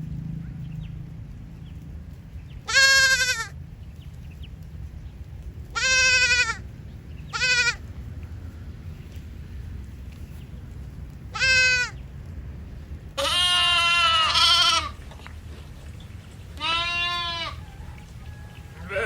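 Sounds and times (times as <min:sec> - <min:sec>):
low background rumble: 0:00.0 - 0:19.0
sheep or goat bleating: 0:02.6 - 0:03.6, 0:05.7 - 0:06.6, 0:07.3 - 0:07.8, 0:11.3 - 0:12.0, 0:13.2 - 0:15.0, 0:16.6 - 0:17.6, 0:18.8 - 0:19.0.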